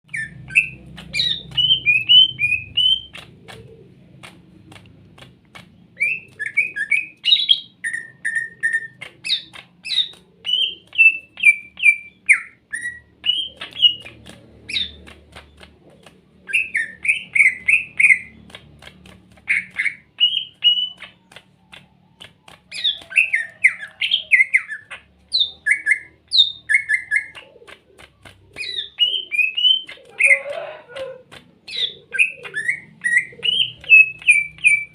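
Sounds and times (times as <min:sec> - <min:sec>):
bird singing varied song: 0:00.0 - 0:03.9, 0:05.5 - 0:34.9.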